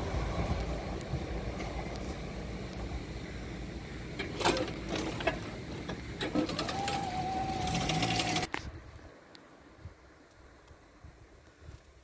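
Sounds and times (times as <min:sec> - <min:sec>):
train rumble: 0:00.0 - 0:08.6
wheels clicking over rail joints: 0:03.9 - 0:08.7.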